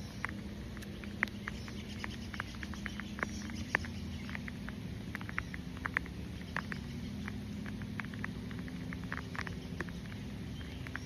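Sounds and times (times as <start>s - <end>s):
raindrops ticking on a surface: 0.0s - 11.0s.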